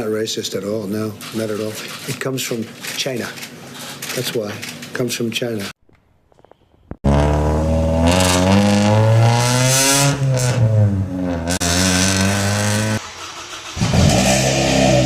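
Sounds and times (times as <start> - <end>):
car engine revving: 7.0 - 15.0.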